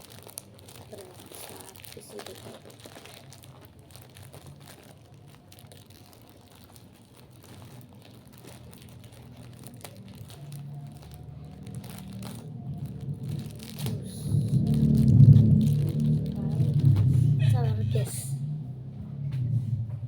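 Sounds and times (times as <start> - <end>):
packaging tearing and crinkling: 0.0 - 17.1
low hum: 9.1 - 20.0.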